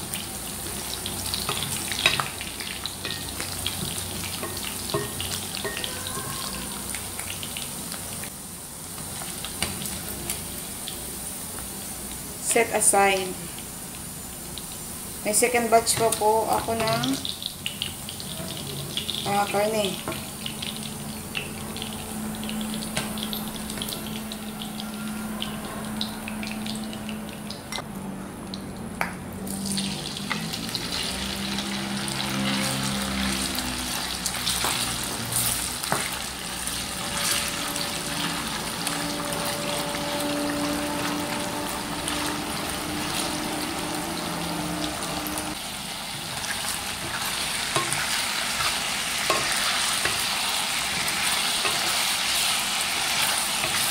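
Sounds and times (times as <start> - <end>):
pork sizzling in hot oil: 0.0 - 27.8, 29.4 - 53.9
spatula scraping and tapping wok: 0.6 - 6.5, 15.9 - 19.4, 46.3 - 53.9.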